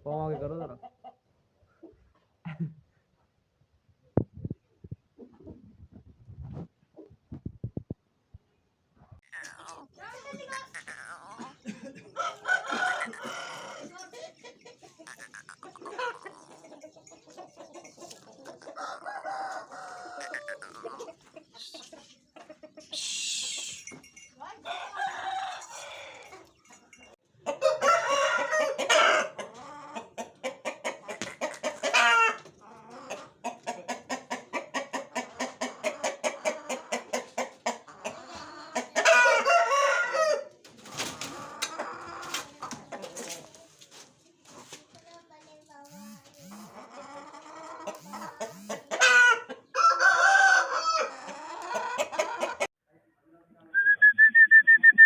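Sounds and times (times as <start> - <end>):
chickens clucking: 0.0 - 2.5, 4.4 - 52.8
rooster crowing: 12.2 - 14.0, 18.8 - 20.9, 24.7 - 26.3, 27.5 - 29.4, 39.1 - 40.5, 48.0 - 52.7.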